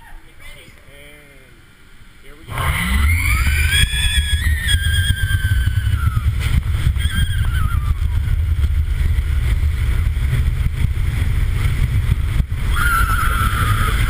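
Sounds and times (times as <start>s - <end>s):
high wavering whine: 2.2s - 14.0s
roller coaster train on track: 2.8s - 14.0s.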